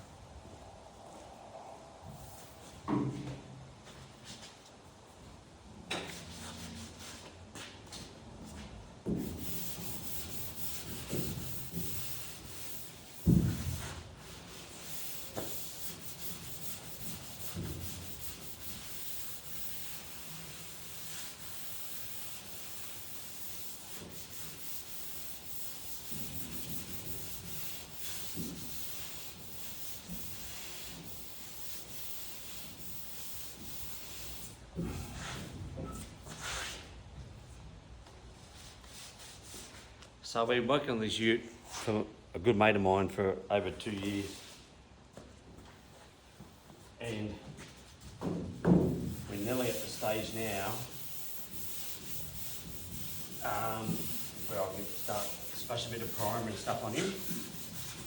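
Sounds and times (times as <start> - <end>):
sanding steel panel: 9.2 - 36.7, 48.6 - 58.0.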